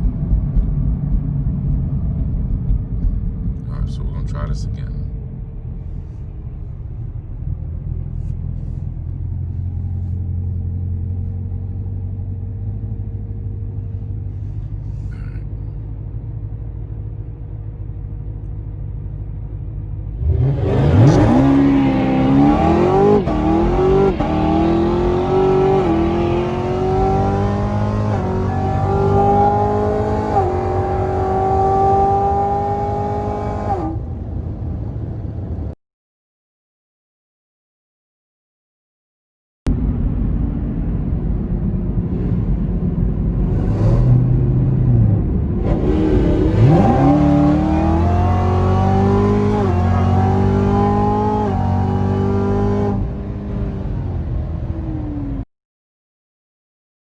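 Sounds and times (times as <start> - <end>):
car engine accelerating: 0.0 - 35.8, 39.7 - 55.4.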